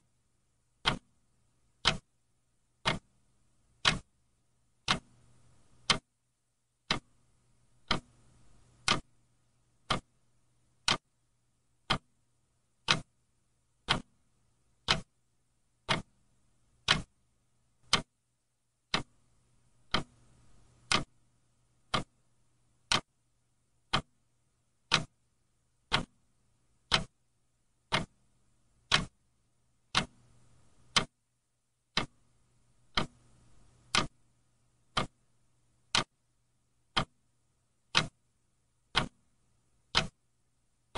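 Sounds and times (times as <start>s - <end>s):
faint low hum: 0.0s - 40.9s
clock ticking: 0.8s - 2.2s, 2.8s - 4.2s, 4.8s - 6.1s, 6.8s - 10.2s, 10.8s - 11.1s, 11.8s - 12.2s, 12.8s - 13.2s, 13.8s - 15.2s, 15.8s - 16.2s, 16.8s - 17.2s, 17.8s - 18.2s, 18.9s - 19.2s, 19.8s - 21.2s, 21.8s - 22.2s, 22.8s - 23.2s, 23.9s - 24.2s, 24.8s - 25.2s, 25.8s - 27.2s, 27.8s - 29.2s, 29.9s - 31.2s, 31.9s - 34.2s, 34.8s - 36.2s, 36.9s - 37.3s, 37.9s - 38.3s, 38.9s - 40.2s.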